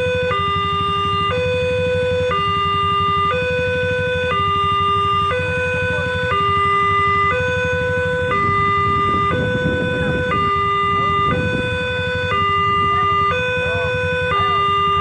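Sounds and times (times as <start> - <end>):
two-tone crossing alarm: 0.0 - 15.0
low rumble: 6.9 - 14.2.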